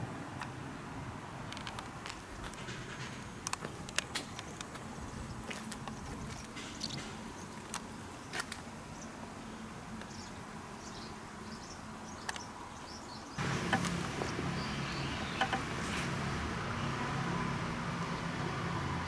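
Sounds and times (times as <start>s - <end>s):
station ambience with low hum: 0.0s - 17.4s
sharp clicks: 12.2s - 12.5s.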